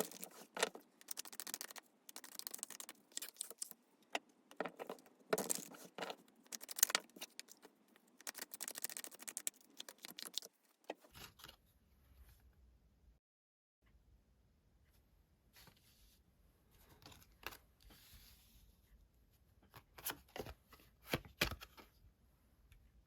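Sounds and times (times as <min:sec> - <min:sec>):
cards being shuffled: 0:00.0 - 0:03.8, 0:04.5 - 0:10.5.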